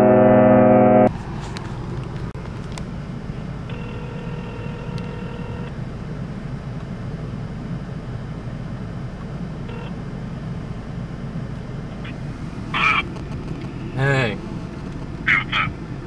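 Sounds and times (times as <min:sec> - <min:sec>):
held tone with overtones: 0:00.0 - 0:01.1
car engine idling: 0:00.0 - 0:16.0.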